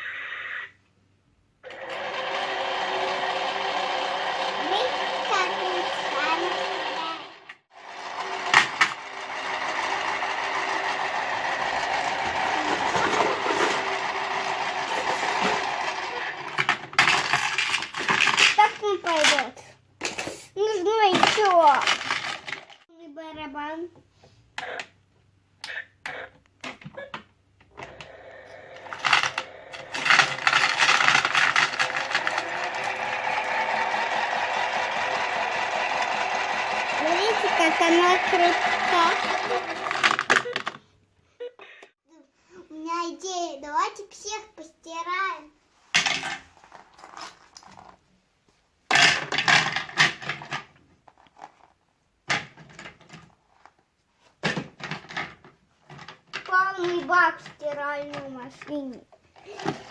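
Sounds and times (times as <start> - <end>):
toy washing machine motor: 1.6 - 19.6, 20.9 - 22.8, 27.7 - 40.8, 59.4 - 59.9
plastic drum rattling: 8.2 - 19.5, 21.1 - 22.8, 28.8 - 40.8, 48.9 - 50.8, 54.4 - 58.3.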